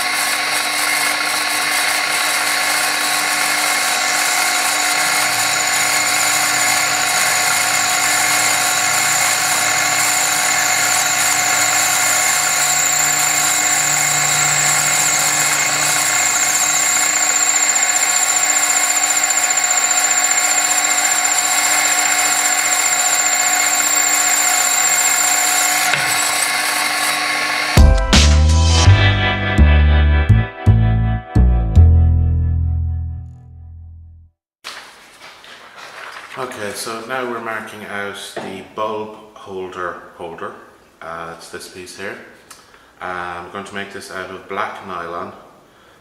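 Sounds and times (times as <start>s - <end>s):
drill whining through metal: 0.0s - 27.8s.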